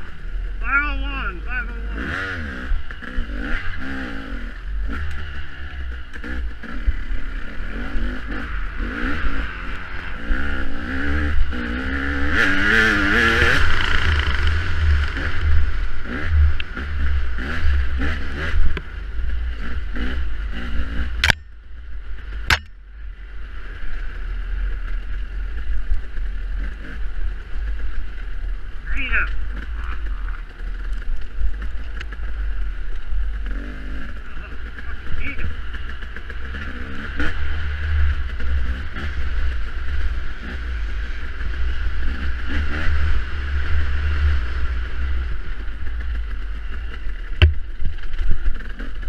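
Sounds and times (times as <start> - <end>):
motorcycle engine revving: 0.0 - 49.0
sharp knocks: 47.4 - 47.7.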